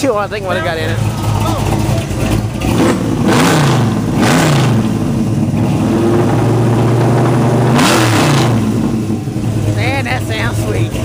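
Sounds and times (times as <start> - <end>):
lumpy engine idle: 0.0 - 4.2, 8.6 - 11.0
engine revving: 0.0 - 11.0.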